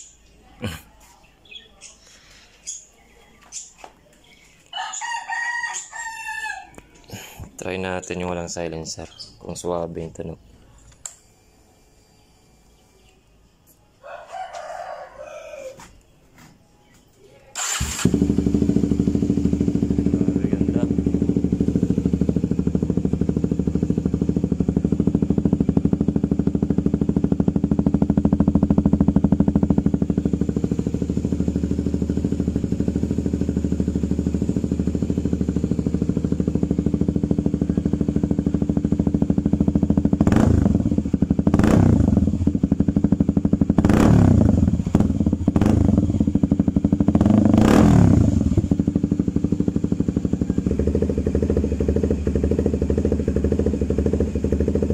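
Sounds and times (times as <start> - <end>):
engine revving: 17.6 - 54.9
motorcycle engine idling: 17.6 - 54.9.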